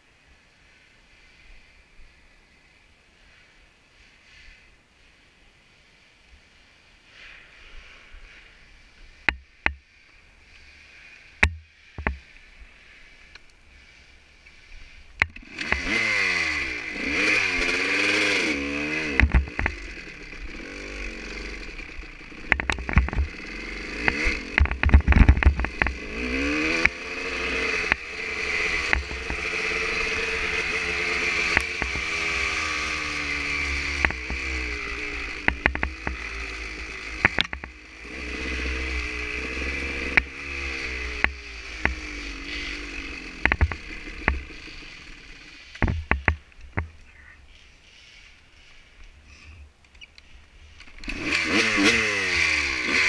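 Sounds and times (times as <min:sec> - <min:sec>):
clatter from rough trail: 0:10.5 - 0:53.0
dirt bike engine revving: 0:13.8 - 0:46.5, 0:50.6 - 0:53.0
sharp knocks: 0:45.8 - 0:46.9.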